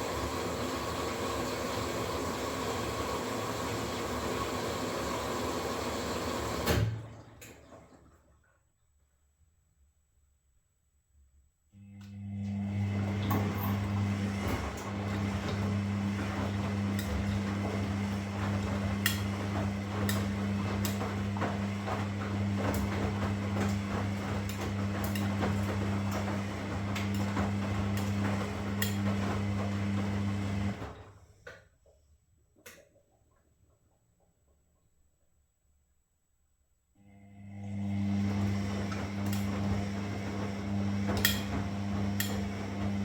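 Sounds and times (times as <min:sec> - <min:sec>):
washing machine motor hum: 0:00.0 - 0:08.3, 0:11.8 - 0:31.5, 0:37.0 - 0:43.0.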